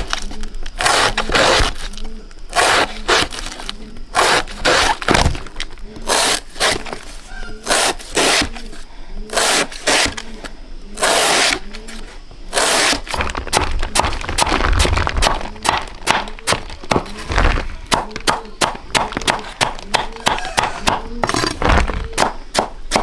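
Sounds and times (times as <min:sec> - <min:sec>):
crisp crackling snaps and scrapes: 0:12.8 - 0:19.8.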